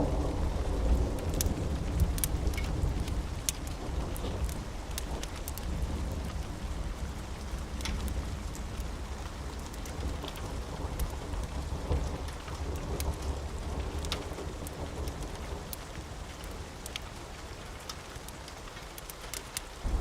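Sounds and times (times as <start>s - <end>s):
thunder rumble: 0.0s - 16.4s
steady rain: 0.0s - 20.0s
wood fire crackling: 0.0s - 20.0s.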